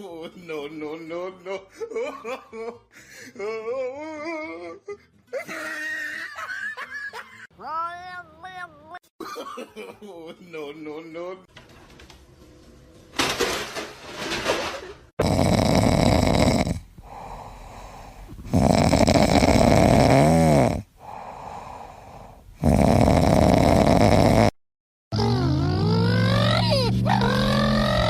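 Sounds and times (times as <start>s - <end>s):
pet snoring loudly: 15.2s - 24.6s
high sliding squeaky tones: 25.2s - 28.0s.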